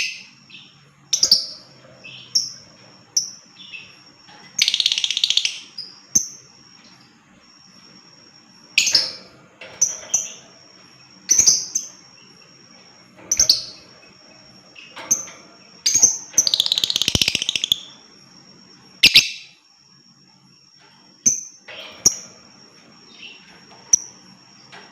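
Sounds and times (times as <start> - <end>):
bird shrill chirps: 4.6 - 6.4, 14.8 - 18.1, 19.0 - 19.6
bird rapid chattering trill: 15.8 - 18.0.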